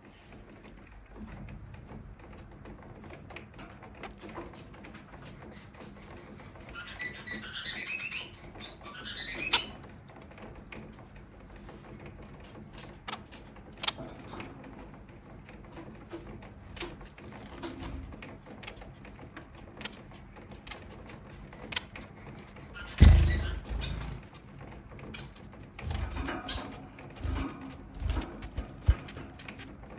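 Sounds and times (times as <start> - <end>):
finches chirping: 5.4 - 9.8, 21.6 - 24.3
heavy low thump: 23.0 - 24.1.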